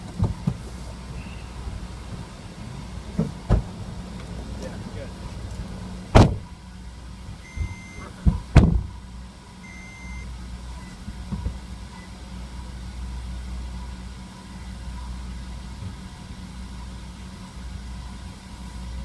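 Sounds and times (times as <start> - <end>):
car engine idling: 0.0 - 19.0
short high electronic beeps: 7.4 - 8.0, 9.7 - 11.0
sharp knocks: 8.2 - 8.9.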